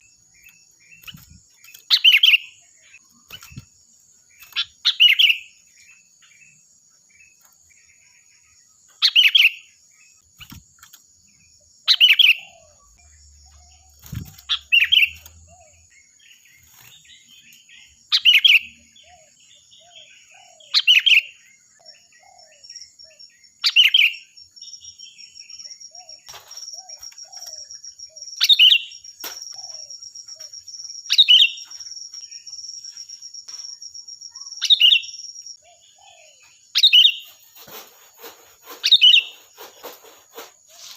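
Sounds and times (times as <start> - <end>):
bulbul singing bright phrases: 11.3 - 37.4.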